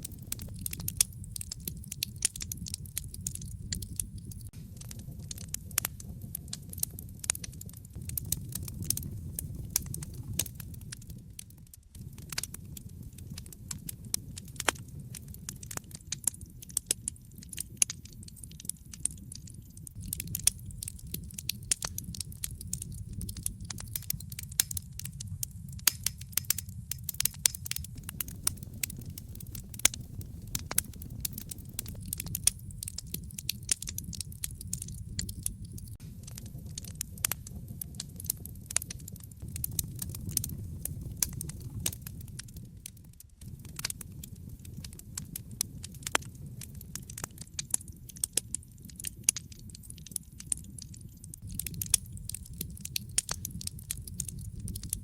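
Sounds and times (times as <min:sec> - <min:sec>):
fire pops and snaps: 0:00.0 - 0:55.0
low rumble of flames: 0:00.0 - 0:55.0
wood fire crackling: 0:00.0 - 0:55.0.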